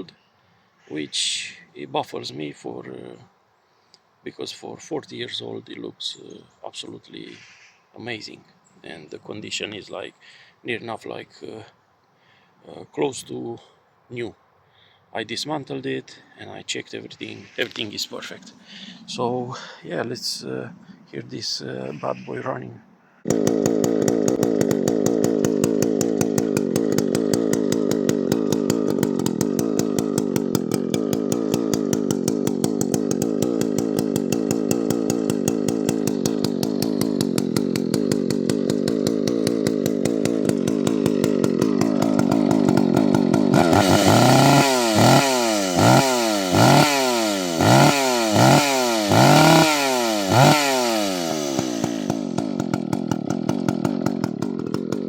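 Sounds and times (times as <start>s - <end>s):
chainsaw engine idling and revving: 23.2s - 55.0s.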